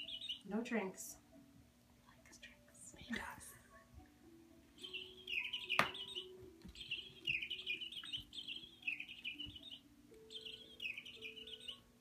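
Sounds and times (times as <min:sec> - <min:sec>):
electronic bird call toy chirping: 0:00.0 - 0:00.5, 0:04.8 - 0:11.8.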